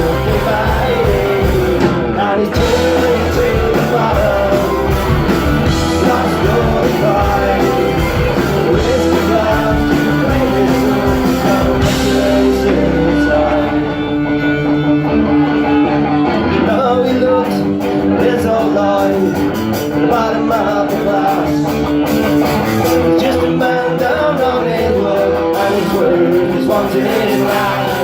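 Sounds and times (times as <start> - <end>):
guitar sustained notes: 0.0 - 19.9
rock band instrumental: 0.0 - 28.0.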